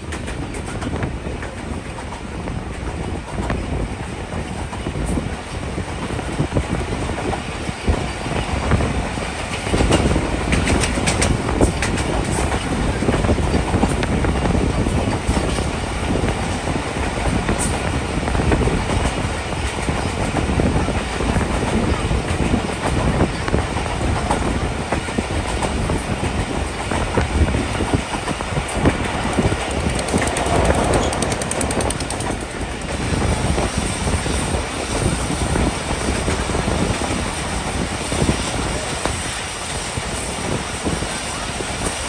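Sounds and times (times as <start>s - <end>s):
train rumbling: 0.0s - 42.0s
wheels clattering over rail joints: 21.5s - 37.1s.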